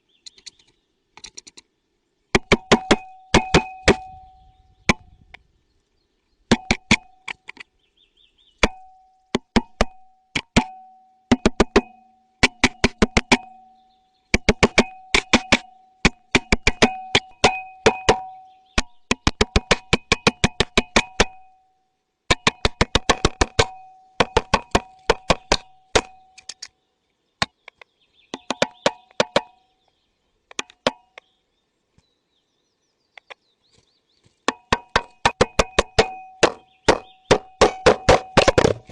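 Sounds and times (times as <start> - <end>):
woodpecker pecking: 0.1 - 4.1, 6.4 - 10.7, 11.3 - 21.6, 22.3 - 26.8, 27.4 - 31.4, 33.1 - 38.9.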